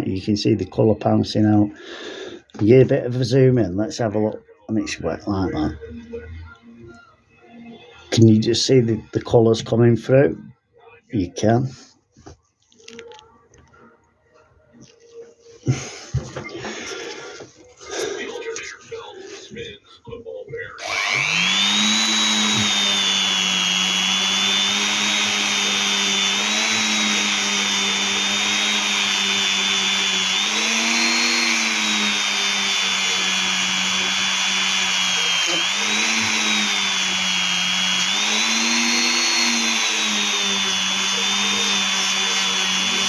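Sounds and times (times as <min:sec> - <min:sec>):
power tool motor whining on stone: 0:20.8 - 0:43.0.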